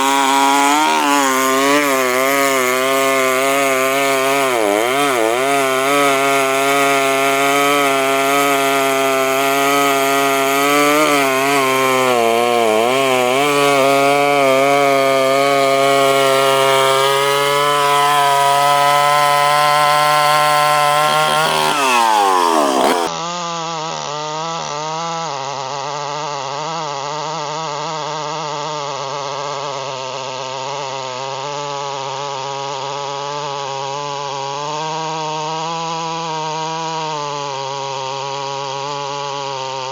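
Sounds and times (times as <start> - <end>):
chainsaw cutting wood: 0.0 - 23.1
chainsaw running steadily: 0.0 - 23.2, 25.5 - 39.9.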